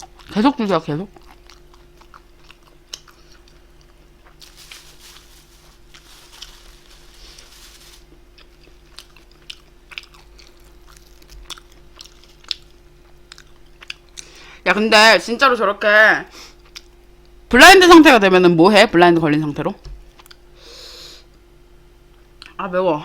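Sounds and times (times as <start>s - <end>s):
faint steady hum: 0.0s - 23.0s
person chewing food: 1.1s - 4.6s, 8.0s - 14.3s.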